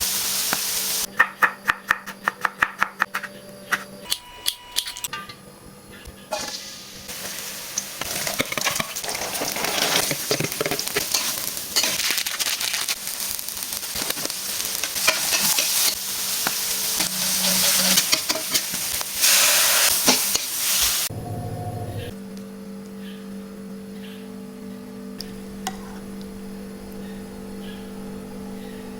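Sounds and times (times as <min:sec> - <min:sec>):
beans sizzling in hot pan: 0:00.0 - 0:01.1, 0:06.3 - 0:21.1.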